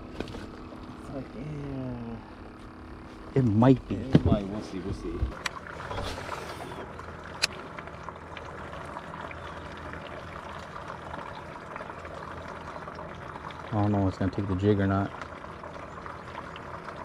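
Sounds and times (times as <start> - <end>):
trickle of running water: 4.4 - 17.0.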